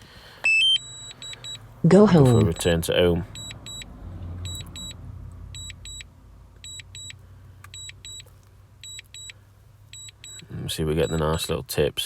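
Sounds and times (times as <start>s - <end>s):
low steady rumble: 0.0s - 11.9s
remote controller double beeps: 0.4s - 1.6s.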